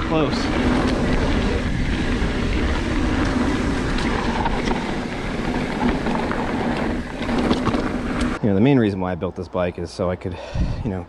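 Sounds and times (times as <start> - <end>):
bike knocks and rattles: 0.0 - 8.4
wind and tyre noise: 0.0 - 11.0.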